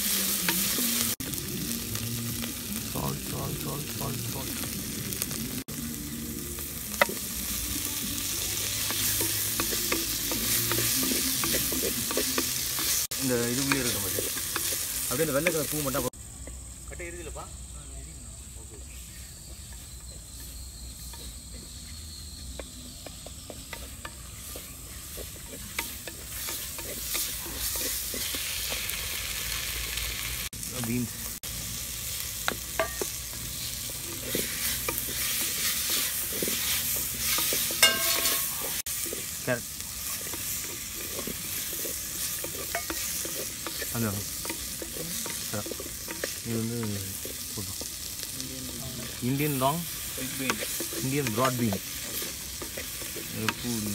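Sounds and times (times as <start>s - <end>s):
vegetables sizzling in a pot: 0.0s - 53.9s
spatula scraping and knocking pot: 8.7s - 15.8s, 19.6s - 29.0s, 32.4s - 39.4s, 40.0s - 48.0s, 49.0s - 53.9s.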